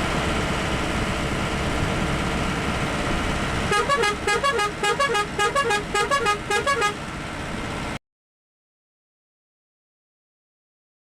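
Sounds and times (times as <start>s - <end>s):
road noise: 0.0s - 8.0s
musical bus horn: 3.7s - 7.1s.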